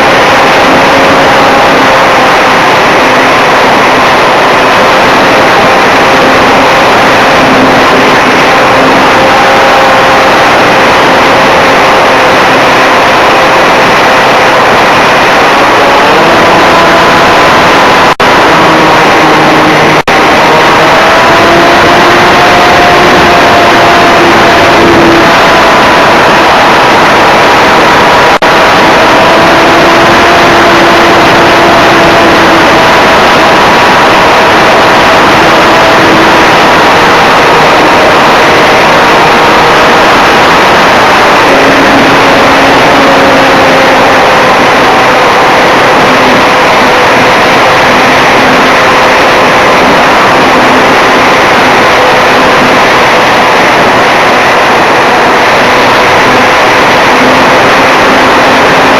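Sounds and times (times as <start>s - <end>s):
electric motor and propeller whine: 0.0s - 58.9s
wind rush over microphone: 0.0s - 58.9s.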